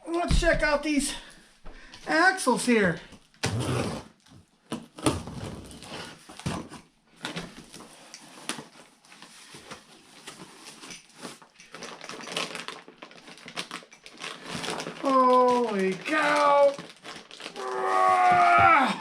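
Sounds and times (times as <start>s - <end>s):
packaging rustling: 7.2s - 19.0s.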